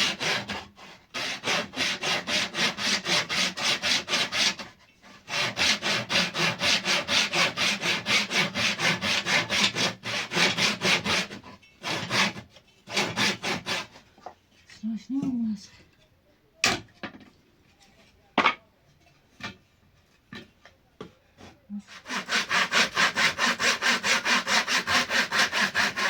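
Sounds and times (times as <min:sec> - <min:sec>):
hand saw cutting wood: 0:00.0 - 0:14.1, 0:21.4 - 0:26.0.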